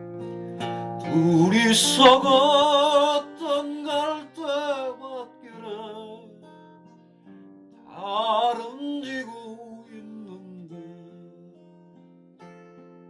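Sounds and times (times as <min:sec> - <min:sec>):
plucked acoustic guitar: 0:00.0 - 0:13.0
person singing with vibrato: 0:01.0 - 0:06.4, 0:07.9 - 0:11.6.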